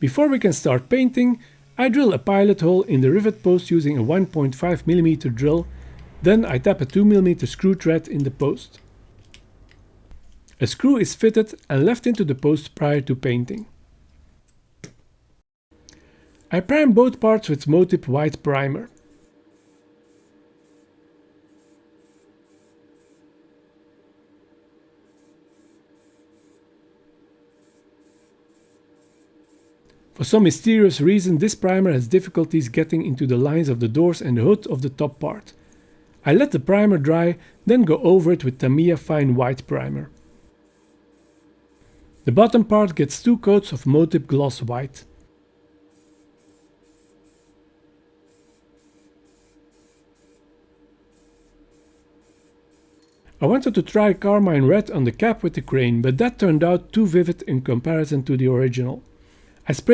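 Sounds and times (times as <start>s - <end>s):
faint steady hum: 0.0s - 59.9s
aerosol can spraying: 19.0s - 20.9s, 21.5s - 23.3s, 25.0s - 26.6s, 27.5s - 29.9s, 40.1s - 42.6s, 45.9s - 50.5s, 51.1s - 53.1s.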